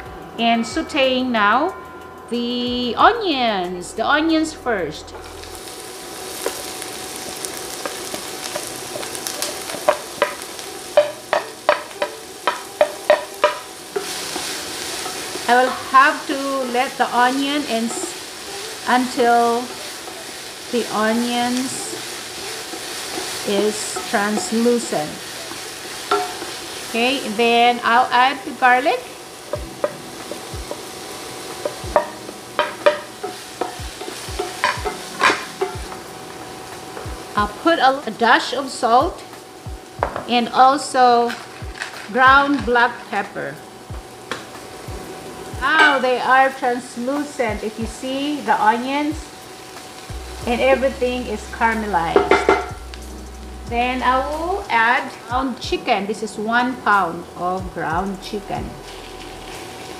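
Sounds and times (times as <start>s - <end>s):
onions sizzling in oil: 2.3s - 59.9s
utensil tapping against pan: 11.0s - 15.2s, 31.6s - 36.0s
utensil scraping a pan: 16.8s - 27.3s.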